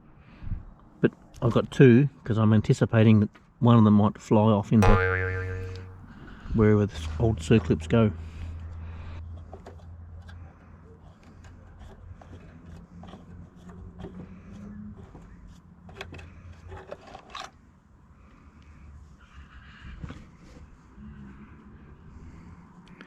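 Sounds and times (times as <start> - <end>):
low steady hum: 4.8 - 6.4.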